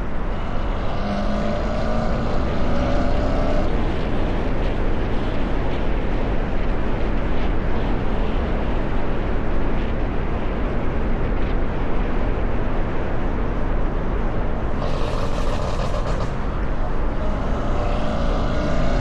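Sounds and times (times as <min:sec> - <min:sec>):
car driving: 0:00.0 - 0:05.3, 0:14.6 - 0:19.0
wind buffeting microphone: 0:00.0 - 0:19.0.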